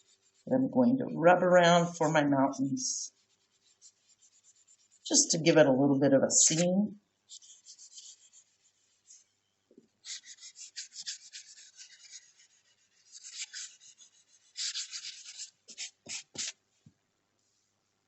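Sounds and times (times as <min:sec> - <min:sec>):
pencil scratching on paper: 0:00.0 - 0:00.5, 0:03.1 - 0:05.1, 0:07.3 - 0:09.2, 0:10.0 - 0:16.6.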